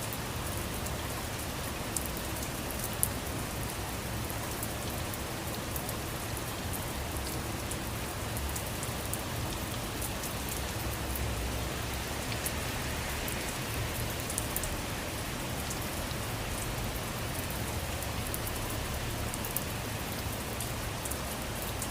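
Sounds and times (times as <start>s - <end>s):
steady rain falling: 0.0s - 21.9s.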